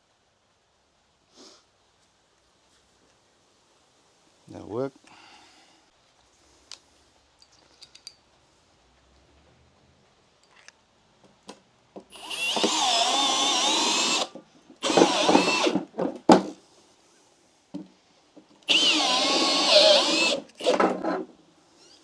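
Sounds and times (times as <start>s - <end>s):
power drill driving screws: 12.1s - 15.9s, 18.7s - 21.2s.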